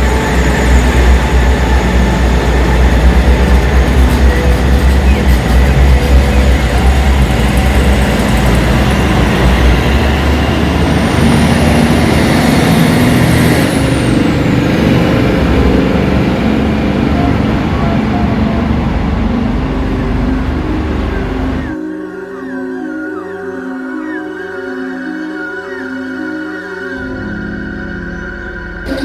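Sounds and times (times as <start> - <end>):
train rumbling on rails: 0.0 - 21.8
high whine: 0.0 - 29.0.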